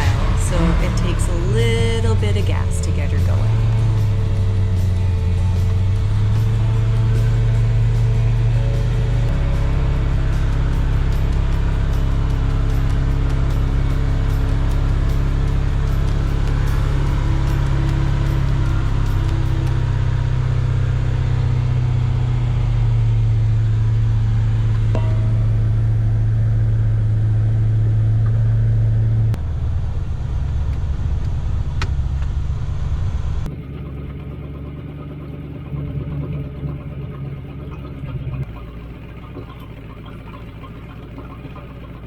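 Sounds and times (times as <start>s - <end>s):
boat engine running: 0.0s - 42.0s.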